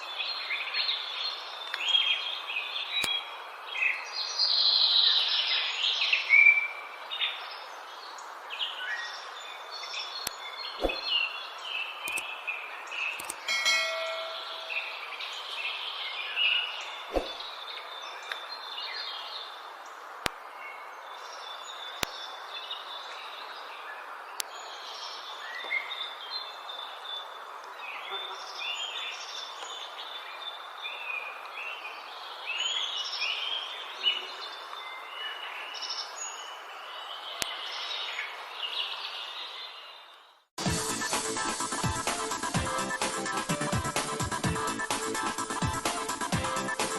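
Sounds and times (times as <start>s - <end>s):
birds chirping and calling: 0.0s - 19.3s
outdoor background hiss: 0.0s - 44.1s.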